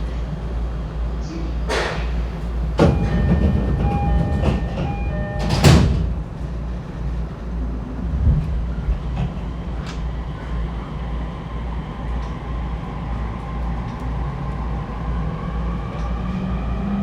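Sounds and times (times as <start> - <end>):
low hum of standing train: 0.0 - 17.0
sliding doors shutting: 1.7 - 6.8
train door chime: 2.8 - 6.4.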